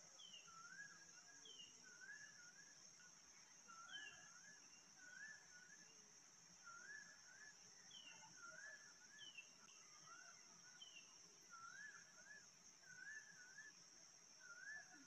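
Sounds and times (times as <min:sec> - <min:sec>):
faint bird calls: 0:14.4 - 0:15.0.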